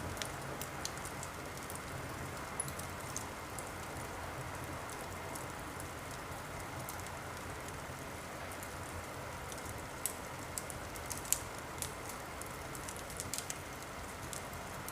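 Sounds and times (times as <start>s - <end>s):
wood fire crackling: 0.0s - 14.9s.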